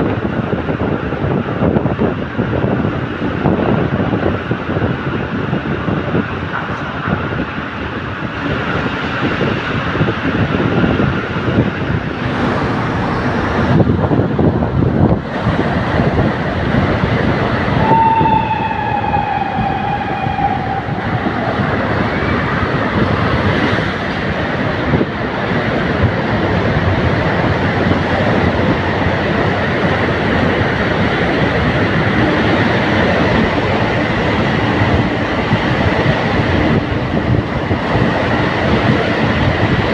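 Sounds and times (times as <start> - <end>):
moving vehicle rumbling: 0.0 - 39.9
vehicle horn: 17.8 - 21.2.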